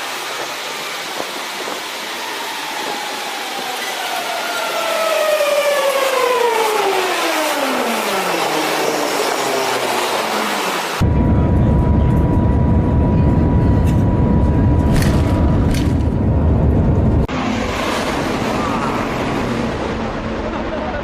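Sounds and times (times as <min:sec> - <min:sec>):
high-speed train whine: 0:00.0 - 0:21.0
loud low rumble: 0:11.0 - 0:21.0.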